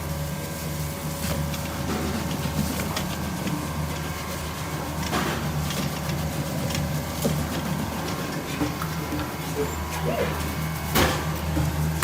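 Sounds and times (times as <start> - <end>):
low motor hum: 0.8 - 12.0.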